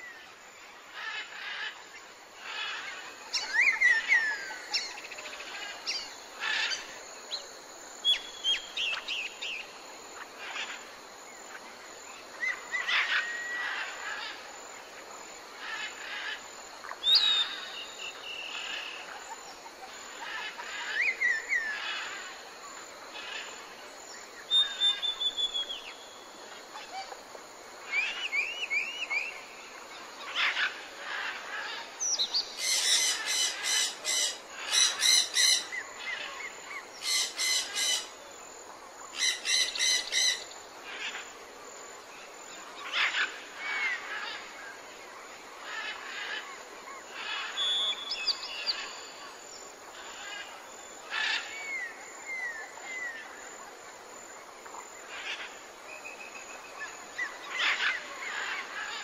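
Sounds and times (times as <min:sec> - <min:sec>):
rapidly repeated bird calls: 0:15.5 - 0:38.3, 0:39.0 - 0:59.0
birds chirping and calling: 0:30.3 - 0:38.2, 0:39.1 - 0:41.1.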